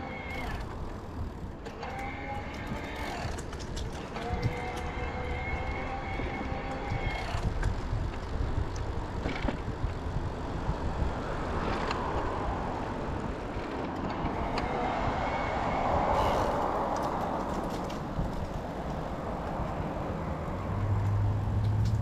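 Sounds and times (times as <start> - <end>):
wind rumbling on microphone: 0.0 - 22.0
car passing: 10.3 - 22.0.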